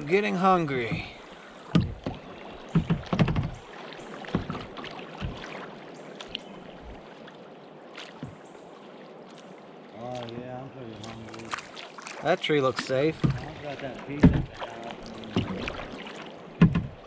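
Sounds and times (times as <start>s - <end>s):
paddle strokes splashing: 0.0s - 17.0s
knocks and low thumps: 0.8s - 3.6s, 13.2s - 14.6s, 16.6s - 17.0s.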